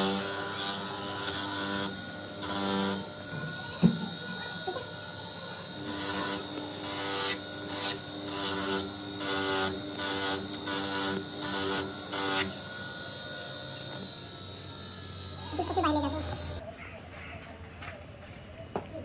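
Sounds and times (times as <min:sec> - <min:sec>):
steady background hum: 0:14.3 - 0:16.6.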